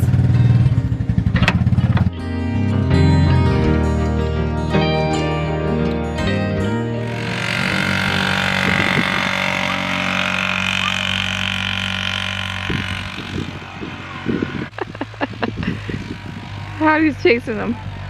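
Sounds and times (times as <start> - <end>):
vehicle engine running: 0.0 - 2.2, 7.0 - 18.0.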